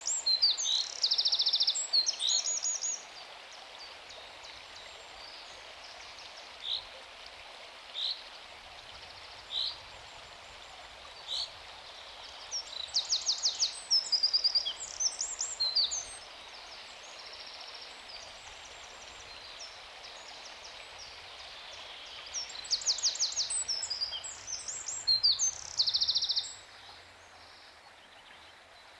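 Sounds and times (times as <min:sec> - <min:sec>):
small birds singing: 0:00.0 - 0:03.2, 0:09.0 - 0:28.9
background hiss: 0:00.0 - 0:28.9.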